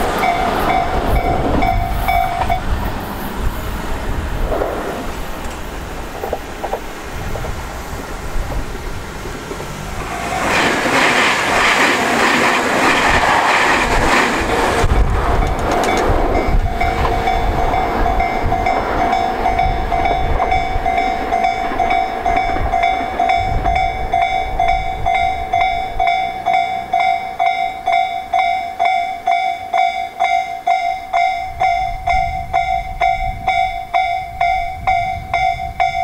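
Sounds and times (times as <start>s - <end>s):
level-crossing bell dinging: 0.0s - 2.7s, 15.9s - 36.0s
approaching train rumble: 0.0s - 36.0s
electric train rumble: 0.0s - 36.0s.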